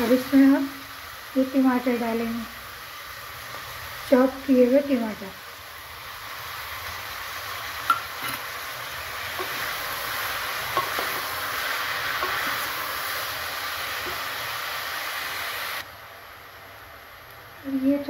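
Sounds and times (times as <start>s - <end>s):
tomatoes sizzling in hot oil: 0.0s - 18.0s.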